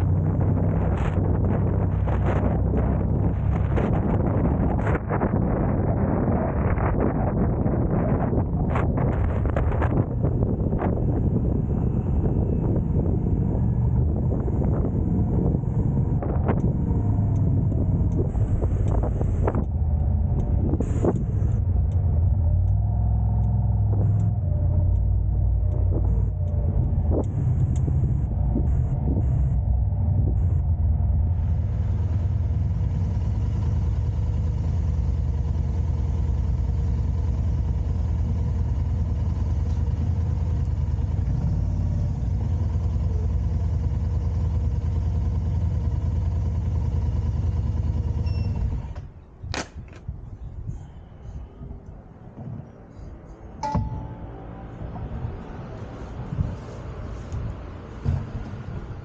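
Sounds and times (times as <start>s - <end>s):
car engine and road noise: 0.0s - 59.0s
sharp knocks: 53.6s - 54.6s.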